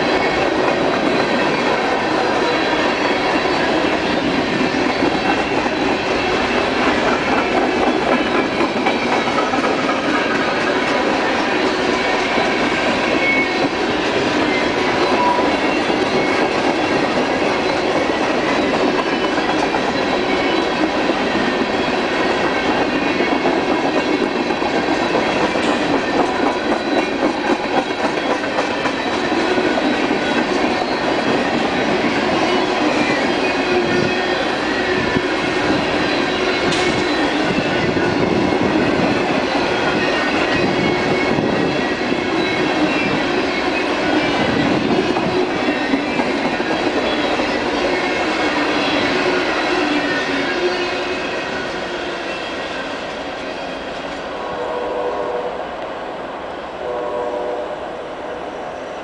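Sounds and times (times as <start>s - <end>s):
steel wheels clattering on rails: 0.0s - 54.3s.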